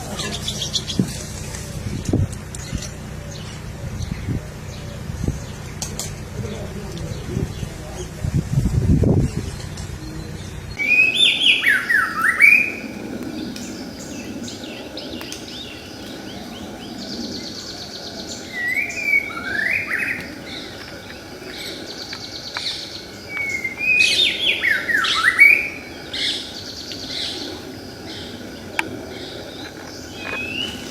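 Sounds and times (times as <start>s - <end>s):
bird whistled song: 9.4s - 28.3s, 29.6s - 30.9s.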